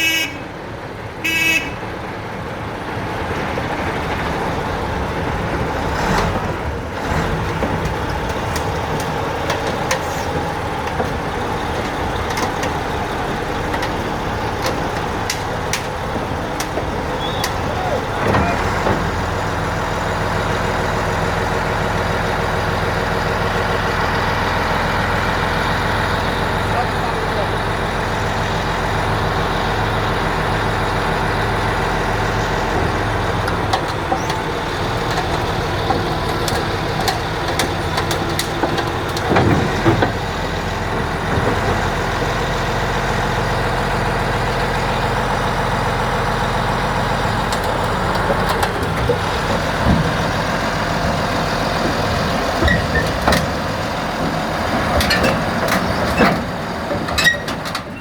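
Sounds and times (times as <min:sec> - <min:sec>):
bulldozer diesel engine running: 0:00.0 - 0:58.0
metallic clanks and knocks: 0:51.1 - 0:58.0.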